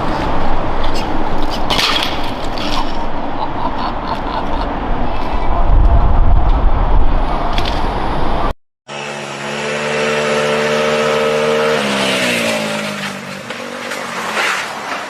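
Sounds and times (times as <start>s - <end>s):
loud rushing rumble: 3.0s - 8.6s.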